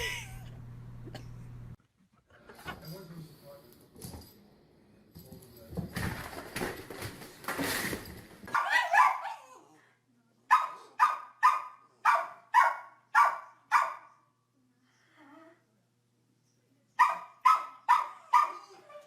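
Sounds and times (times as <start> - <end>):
dog barking: 8.5 - 9.6, 10.5 - 14.2, 17.0 - 18.8.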